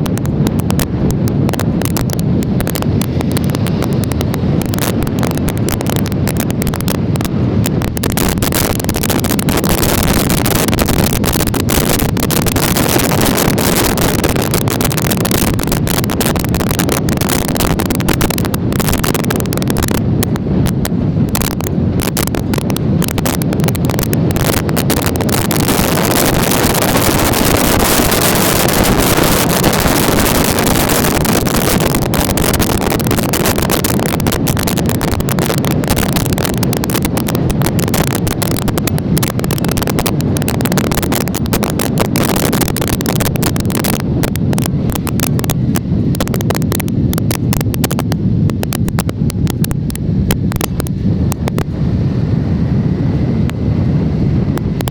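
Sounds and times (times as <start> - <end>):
road noise: 0.0 - 54.9
wind buffeting microphone: 0.0 - 54.9.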